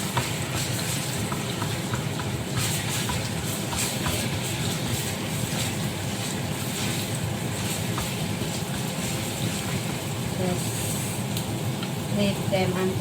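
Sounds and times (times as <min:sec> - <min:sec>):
garlic paste sizzling in oil: 0:00.0 - 0:13.0.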